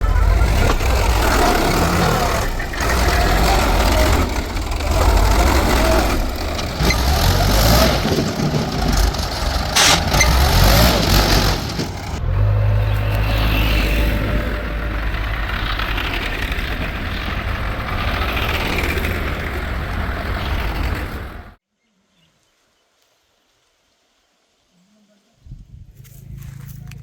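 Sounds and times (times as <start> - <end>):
mechanical clatter: 0.0 - 12.2
diesel machinery engine: 0.0 - 21.6.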